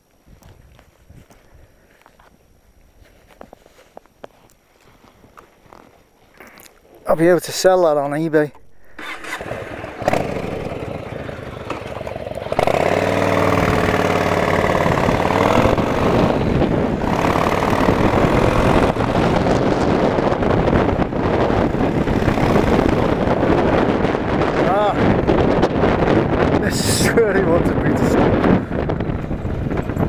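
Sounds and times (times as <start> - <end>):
wind noise on microphone: 0.0 - 3.9, 7.2 - 30.0
motorcycle engine accelerating: 8.9 - 30.0.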